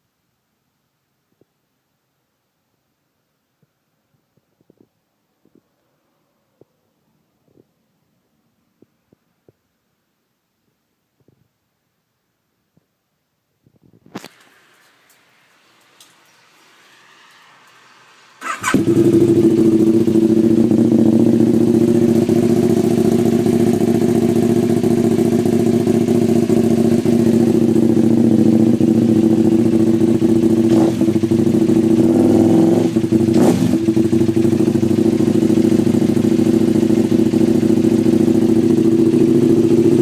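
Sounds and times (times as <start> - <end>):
motorcycle engine idling loudly: 18.4 - 40.0.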